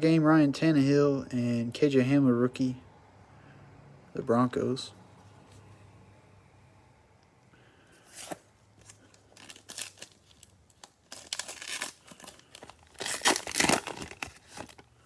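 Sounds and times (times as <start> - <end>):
cellophane wrapper crinkling: 8.1 - 15.0.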